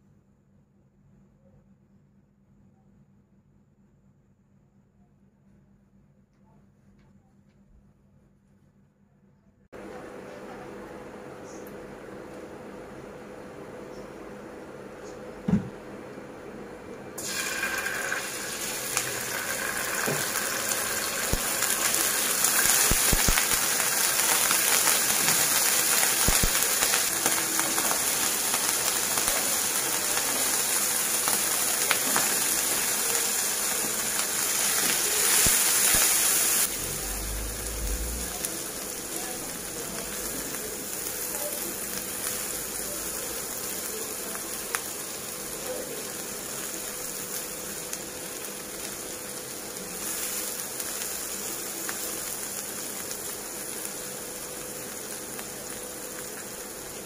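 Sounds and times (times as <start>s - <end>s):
oil sizzling in frying pan: 17.2s - 57.0s.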